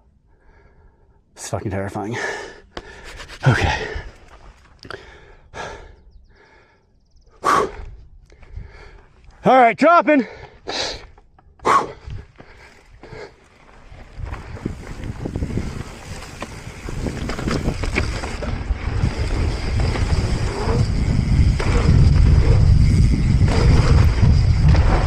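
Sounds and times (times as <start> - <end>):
bike rattles and clicks: 2.8 - 5.2, 10.3 - 25.0
wind buffeting microphone: 11.9 - 25.0
tyres rumbling over dirt: 12.4 - 25.0.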